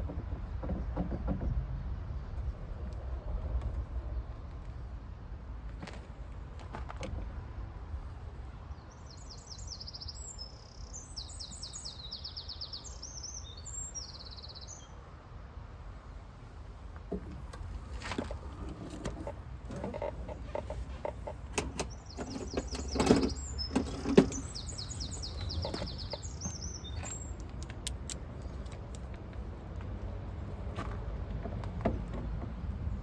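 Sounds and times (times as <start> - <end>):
knocks and clicks of work: 0.0 - 1.7
small bird singing: 8.8 - 14.9, 21.9 - 27.4.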